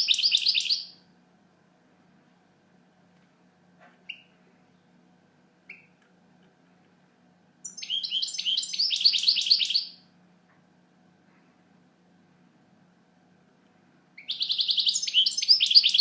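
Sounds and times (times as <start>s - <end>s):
finch chirping: 0.0s - 1.0s, 4.1s - 4.4s, 5.7s - 6.0s, 7.6s - 10.0s, 14.2s - 16.0s
finch twittering song: 0.0s - 1.0s, 4.1s - 4.4s, 5.7s - 6.0s, 7.6s - 10.0s, 14.2s - 16.0s.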